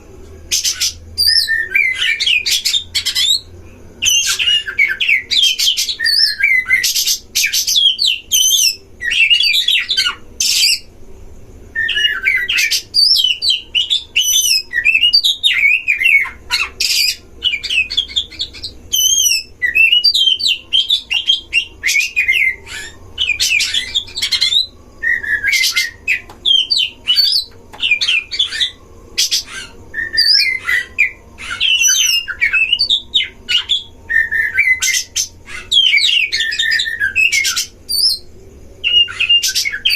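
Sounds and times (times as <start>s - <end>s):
birds singing whistles and warbles: 0.4s - 11.0s, 11.7s - 39.9s.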